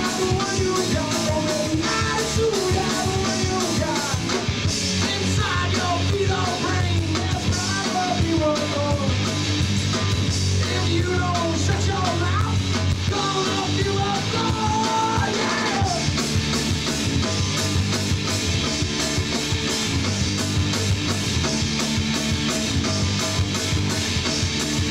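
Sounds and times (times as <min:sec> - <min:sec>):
person singing: 0:00.0 - 0:04.4, 0:05.0 - 0:09.2, 0:10.6 - 0:16.1
bass guitar: 0:00.0 - 0:24.9
distorted electric guitars: 0:00.0 - 0:24.9
drum kit: 0:00.0 - 0:24.9.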